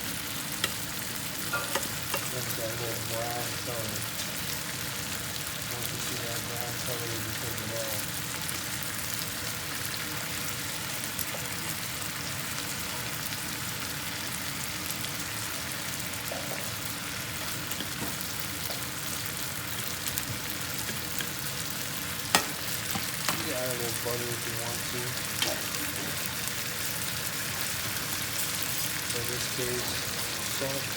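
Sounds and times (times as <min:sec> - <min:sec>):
chicken sizzling in a pan: 0:00.0 - 0:30.9
faint pops of frying: 0:17.7 - 0:19.0, 0:22.2 - 0:23.5.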